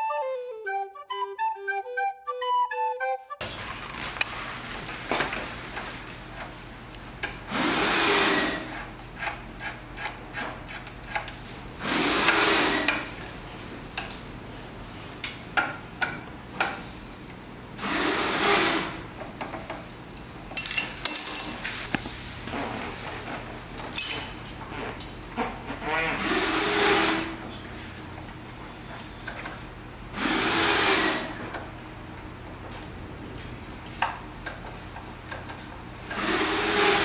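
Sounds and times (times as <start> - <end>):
metal tools clinking: 20.2 - 21.9, 23.8 - 25.3
small power tool bursts: 36.1 - 37.0.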